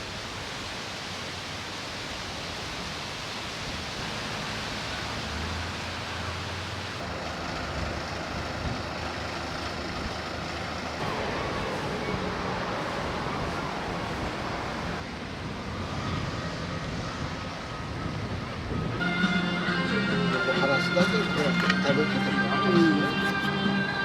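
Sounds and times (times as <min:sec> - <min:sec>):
outdoor rushing noise: 0:03.1 - 0:22.5.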